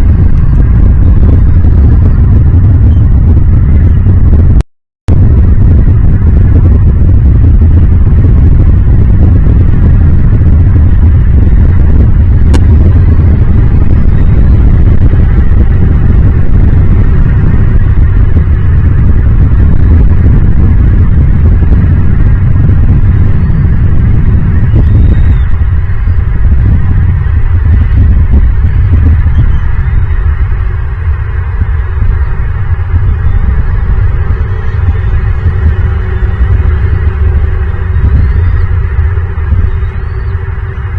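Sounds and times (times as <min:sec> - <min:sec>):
wind buffeting microphone: 0:00.0 - 0:40.9
faint bird chirps: 0:24.7 - 0:26.3, 0:39.6 - 0:40.9.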